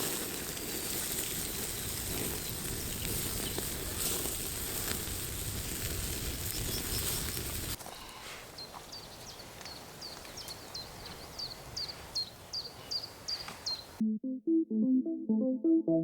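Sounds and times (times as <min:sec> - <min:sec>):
faint outdoor background noise: 0:00.0 - 0:14.0
small bird chirping: 0:08.6 - 0:14.0.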